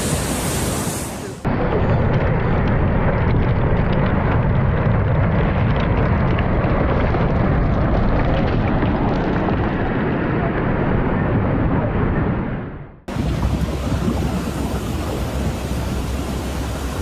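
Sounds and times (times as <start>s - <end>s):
ocean surf: 0.0s - 1.6s, 13.1s - 17.0s
wind noise on microphone: 0.0s - 17.0s
low rumble with faint crackling: 1.4s - 17.0s.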